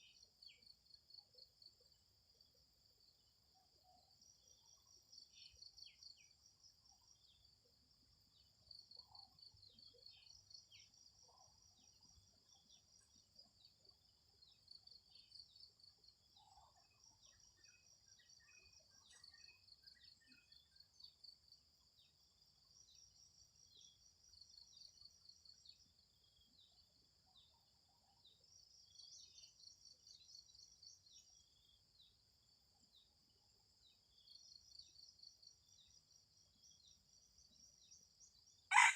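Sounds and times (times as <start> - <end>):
faint bird chirps: 3.5 - 32.2.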